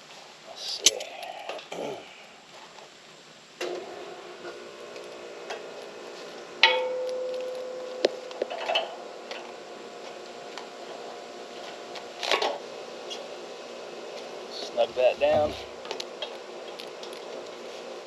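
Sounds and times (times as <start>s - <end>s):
faint steady hum: 0.0s - 18.0s
metal clank ringing: 6.6s - 7.9s.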